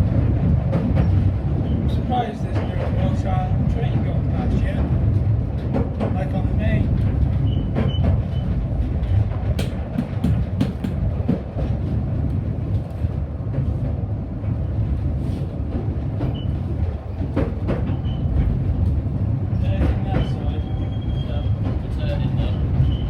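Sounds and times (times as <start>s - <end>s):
train wheels rumbling on track: 0.0s - 23.0s
clicks from rail joints: 5.5s - 14.0s, 15.3s - 19.0s.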